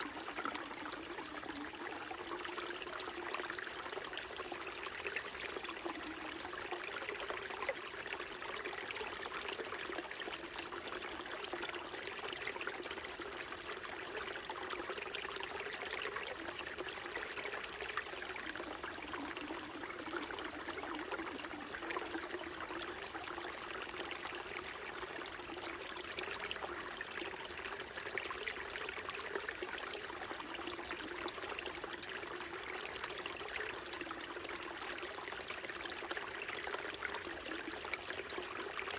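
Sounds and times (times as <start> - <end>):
stream trickling: 0.0 - 38.9.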